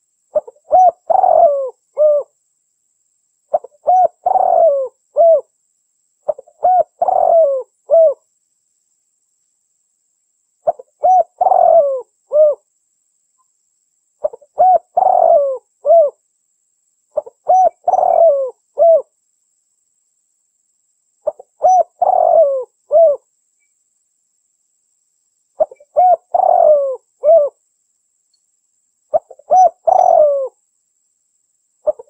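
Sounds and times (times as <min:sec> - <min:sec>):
dove cooing: 0:00.3 - 0:02.3, 0:03.5 - 0:05.5, 0:06.3 - 0:08.2, 0:10.6 - 0:12.6, 0:14.2 - 0:16.2, 0:17.2 - 0:19.1, 0:21.2 - 0:23.3, 0:25.6 - 0:27.6, 0:29.1 - 0:30.6.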